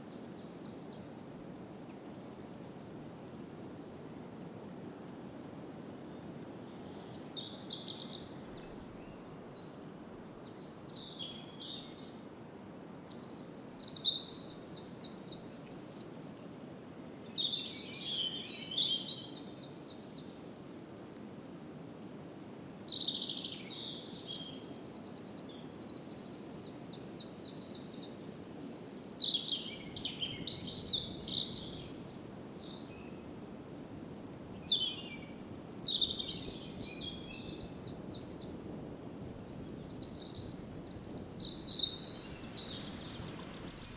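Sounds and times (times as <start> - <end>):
wind through branches: 0.0 - 43.9
songbird trills and chirps: 6.7 - 15.6, 22.6 - 38.6, 39.8 - 43.9.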